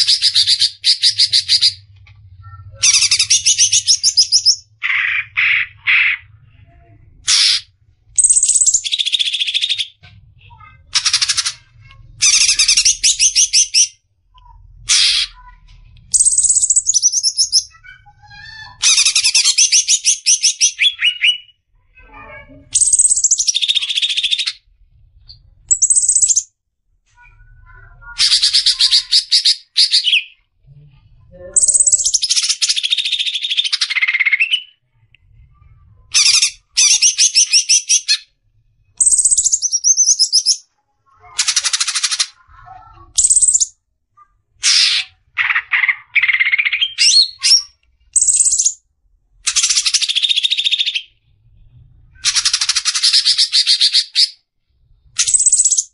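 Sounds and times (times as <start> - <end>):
bird singing rapid rattling notes: 25.7 - 26.5.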